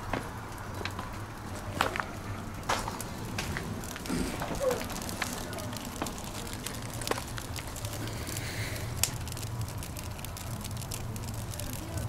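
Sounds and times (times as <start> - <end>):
fire crackles: 0.0 - 12.0
wood fire rumbling: 0.0 - 12.0.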